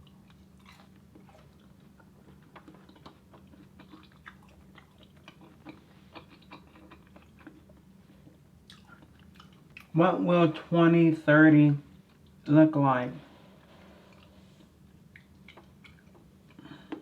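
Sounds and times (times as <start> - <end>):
soft chewing with wet clicks: 0.0 - 10.0, 11.9 - 12.5, 14.0 - 17.0.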